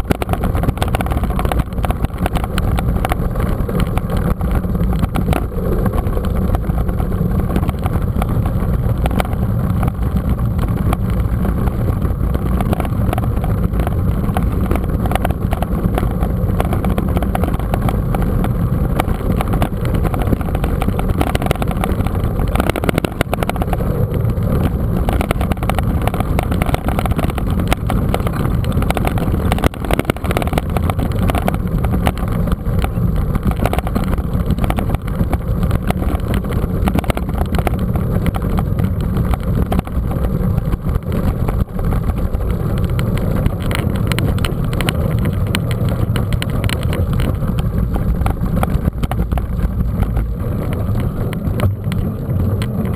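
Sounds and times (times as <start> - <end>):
bike knocks and rattles: 0.0 - 52.9
wind rumble on microphone: 0.0 - 52.9.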